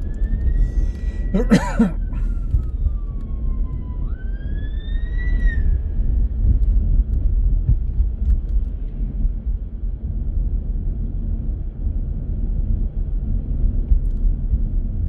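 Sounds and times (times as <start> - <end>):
car driving rumble: 0.0 - 2.8
emergency vehicle siren wail: 2.8 - 6.0.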